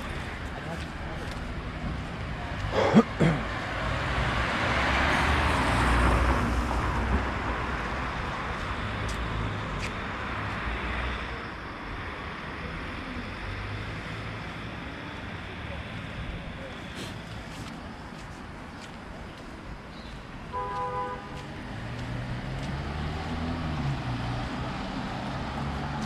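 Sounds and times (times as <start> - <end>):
background traffic: 0.0 - 26.0
vehicle passing: 3.6 - 11.4, 20.6 - 26.0.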